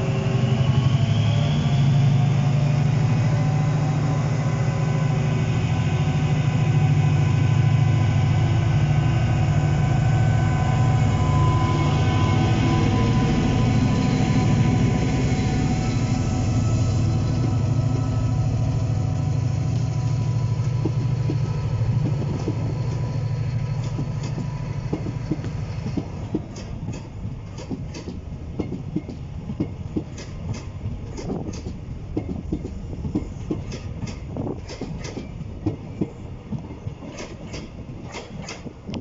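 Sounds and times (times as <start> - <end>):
diesel locomotive drone: 0.0 - 39.0
train wheels clattering over rail joints: 20.6 - 39.0.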